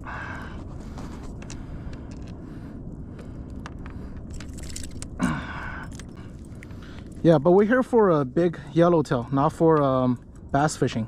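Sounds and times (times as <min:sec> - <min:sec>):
low rushing background: 0:00.0 - 0:11.0
fishing hook clicks and rattles: 0:03.6 - 0:07.4.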